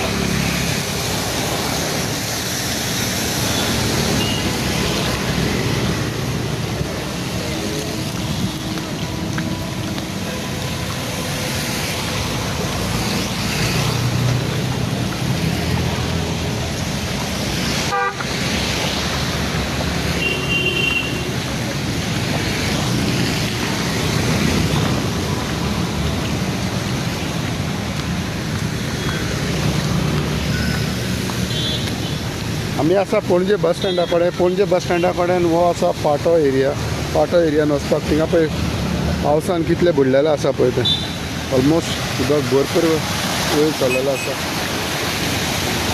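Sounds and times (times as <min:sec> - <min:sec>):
traffic engine rumble: 0:00.0 - 0:45.9
tyres hissing through water: 0:00.0 - 0:45.9
car horn toot: 0:17.9 - 0:18.3, 0:20.2 - 0:21.3, 0:40.8 - 0:41.2.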